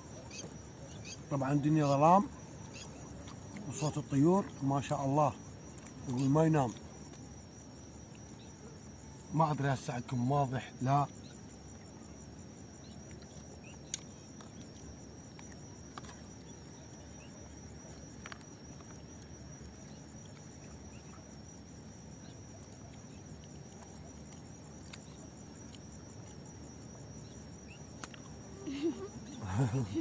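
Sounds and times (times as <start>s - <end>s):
high insect trill: 0.0s - 30.0s
low background noise: 0.0s - 30.0s
faint bird chirps and clicks: 0.1s - 1.3s, 8.0s - 8.6s, 12.8s - 21.3s, 22.2s - 28.4s.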